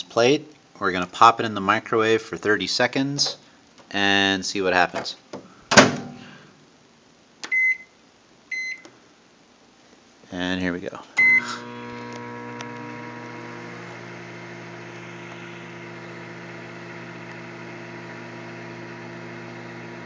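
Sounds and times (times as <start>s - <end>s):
microwave oven humming: 11.2s - 20.0s.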